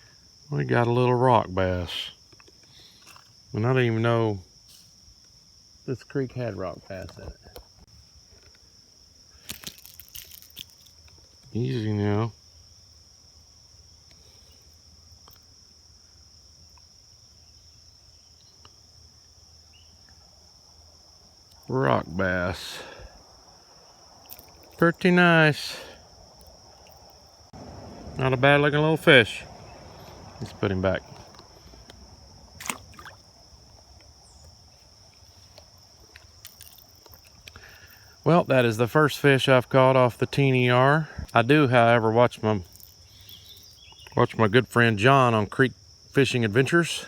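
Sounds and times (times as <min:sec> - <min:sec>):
high-pitched insect trill: 0:00.0 - 0:47.0
creek water trickling: 0:18.6 - 0:38.9, 0:42.5 - 0:44.5
fish splashing into water: 0:32.6 - 0:33.4.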